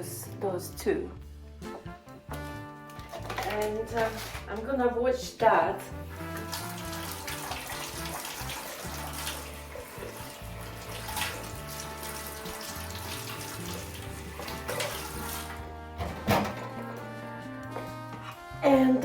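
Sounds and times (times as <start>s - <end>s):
kitchen tap running: 5.8s - 16.7s.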